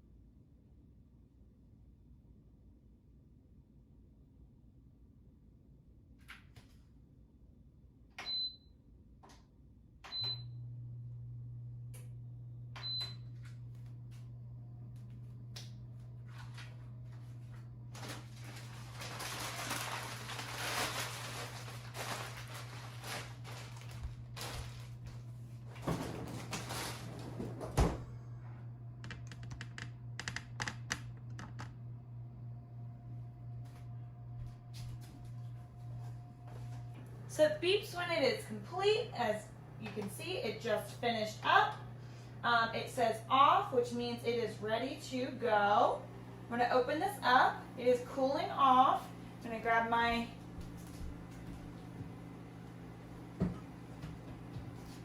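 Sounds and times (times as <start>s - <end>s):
low fan hum: 10.0s - 55.0s
rustling: 17.9s - 25.3s.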